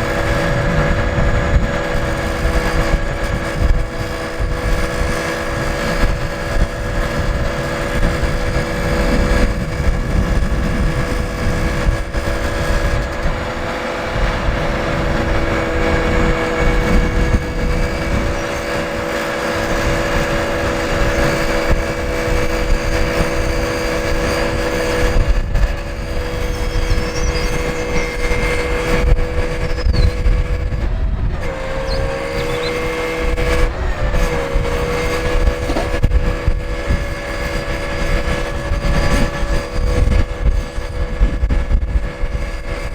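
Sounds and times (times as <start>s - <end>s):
diesel truck engine running: 0.0s - 42.9s.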